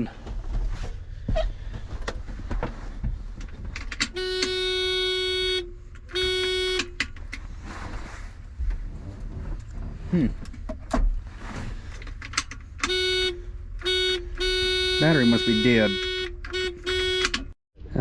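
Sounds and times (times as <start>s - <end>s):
car horn tooting: 4.0s - 7.1s, 12.8s - 17.6s.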